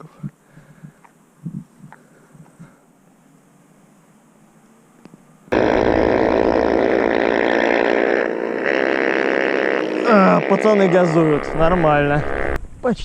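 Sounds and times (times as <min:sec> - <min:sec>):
motorbike engine revving: 0:05.5 - 0:12.6.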